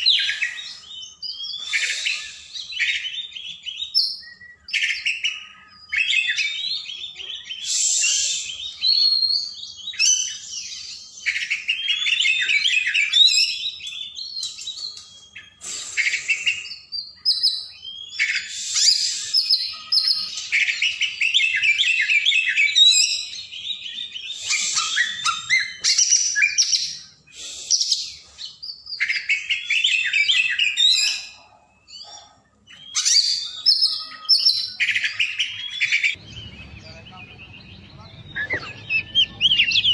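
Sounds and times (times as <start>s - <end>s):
bird singing whistles and chatter: 0.0s - 39.9s.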